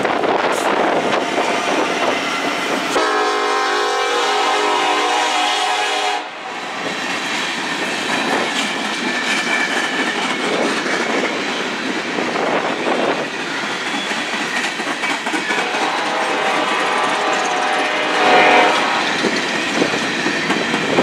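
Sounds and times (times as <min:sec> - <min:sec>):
train wheels clattering over rail joints: 0:06.8 - 0:18.0, 0:19.0 - 0:21.0.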